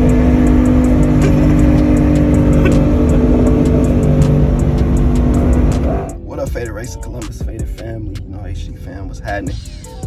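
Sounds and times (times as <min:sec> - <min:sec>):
loud car engine revving: 0:00.0 - 0:06.2
music: 0:00.0 - 0:10.0.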